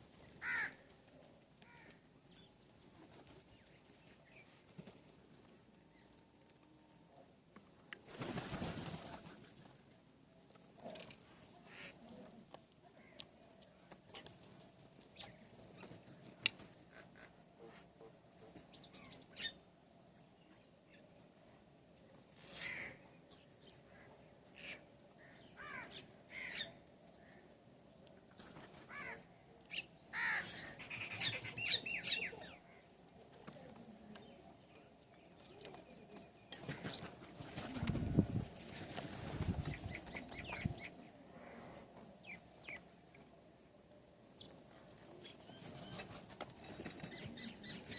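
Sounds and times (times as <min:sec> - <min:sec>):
birds chirping and calling: 0:28.9 - 0:32.6, 0:39.4 - 0:41.0, 0:45.2 - 0:47.9.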